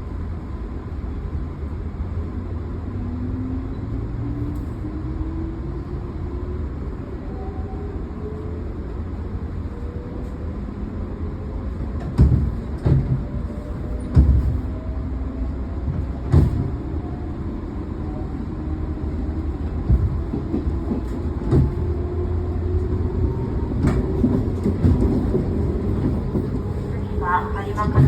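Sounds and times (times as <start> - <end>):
train wheels rumbling: 9.7 - 28.0.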